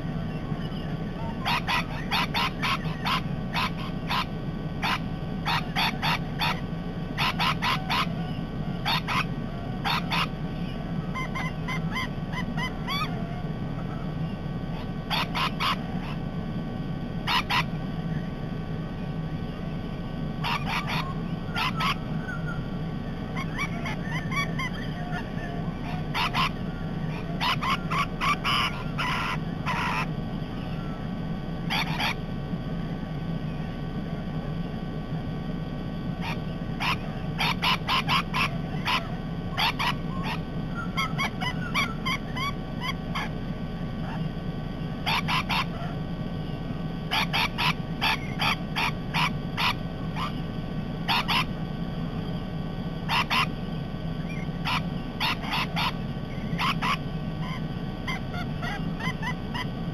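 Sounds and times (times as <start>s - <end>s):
steady low hum: 0.0s - 59.9s
parrots screeching: 0.2s - 16.2s, 17.2s - 17.8s, 20.4s - 22.7s, 23.3s - 31.0s, 31.7s - 32.2s, 36.2s - 43.4s, 44.0s - 44.3s, 45.0s - 46.0s, 47.1s - 50.4s, 51.0s - 51.5s, 53.0s - 53.6s, 54.2s - 59.8s.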